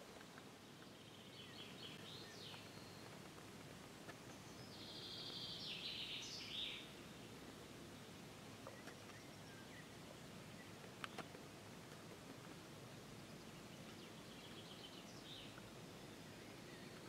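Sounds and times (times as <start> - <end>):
low outdoor hiss: 0.0 - 17.0
songbird trilling: 4.5 - 6.9.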